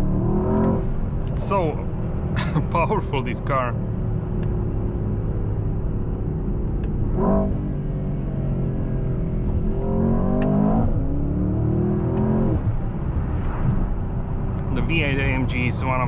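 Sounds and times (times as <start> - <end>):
car engine revving through gears: 0.0 - 1.5, 6.7 - 13.9.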